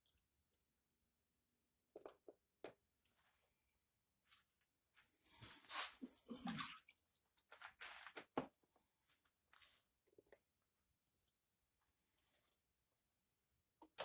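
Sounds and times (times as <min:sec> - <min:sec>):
wet scrubbing and sloshing: 0:05.8 - 0:06.9.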